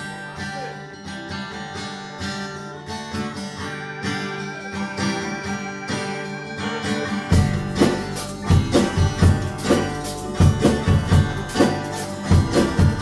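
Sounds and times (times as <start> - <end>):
guitar strumming: 0.0 - 13.0
live band playing: 2.6 - 13.0
drum beats: 4.6 - 13.0.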